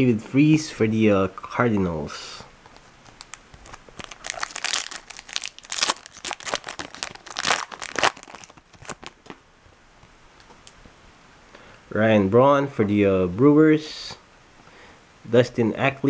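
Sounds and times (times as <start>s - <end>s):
foil wrapper crinkling and tearing: 3.0s - 9.4s.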